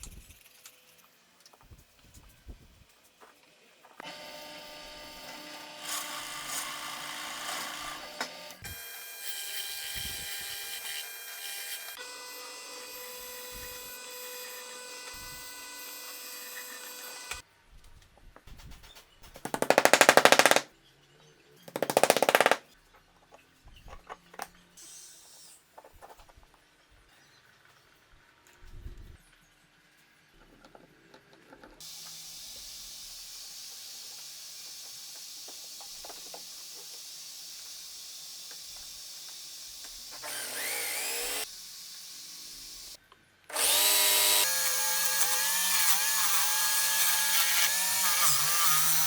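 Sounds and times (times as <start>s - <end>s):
power tool whining: 4.0s - 17.4s, 19.5s - 20.6s, 21.7s - 22.6s, 40.1s - 41.5s, 42.6s - 49.0s
loud rapid rattling bursts: 19.2s - 20.7s, 21.7s - 22.7s.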